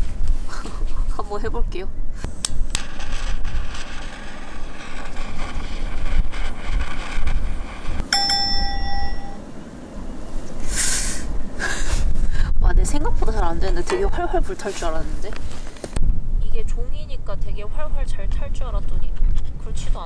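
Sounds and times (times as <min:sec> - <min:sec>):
lighter click: 0:02.2 - 0:05.0
flame roaring: 0:02.2 - 0:12.4
short metallic ring: 0:08.1 - 0:09.5.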